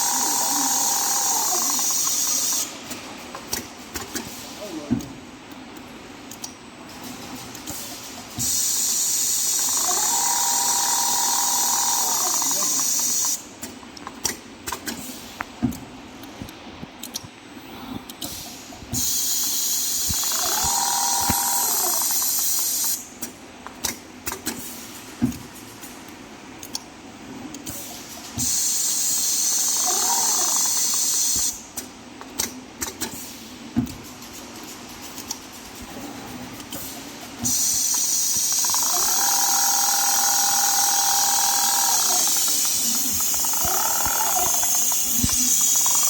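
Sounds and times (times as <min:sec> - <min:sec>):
mechanical clicks and knocks: 0:36.6 - 0:46.0.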